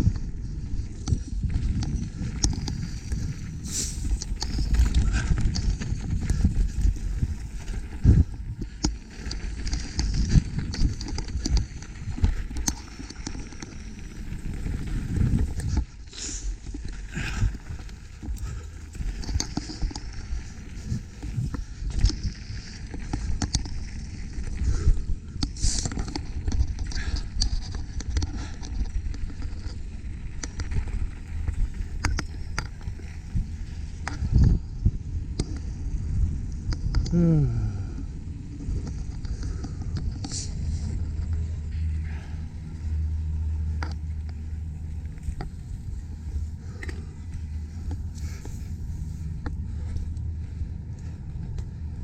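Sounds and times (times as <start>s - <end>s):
wind rumbling on microphone: 0.0s - 52.0s
mountain bike clattering: 0.2s - 36.9s.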